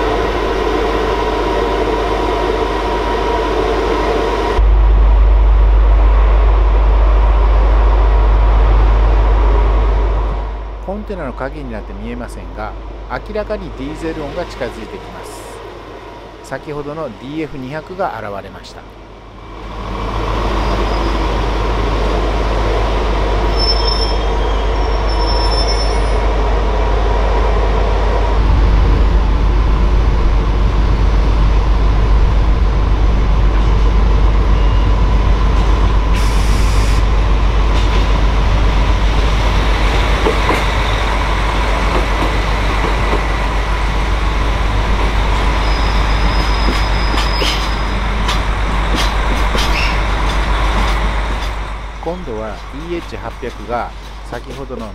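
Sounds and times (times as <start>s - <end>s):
freight train rumbling past: 0.0s - 54.9s
wheel squeal: 23.5s - 26.2s, 45.6s - 48.0s.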